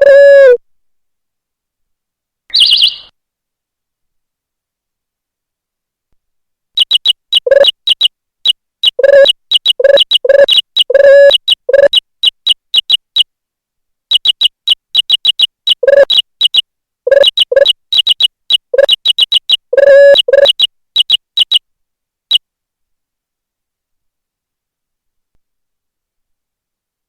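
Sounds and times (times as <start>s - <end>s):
high synthetic chirp: 2.5s - 3.1s, 6.8s - 8.1s, 8.8s - 13.3s, 14.1s - 21.6s.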